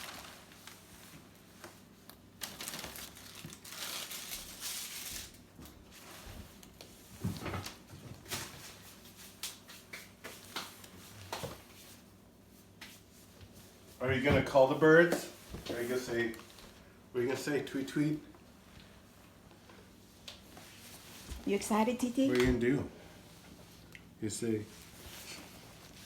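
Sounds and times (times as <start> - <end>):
bag crinkling: 0.0 - 0.8, 2.4 - 5.4.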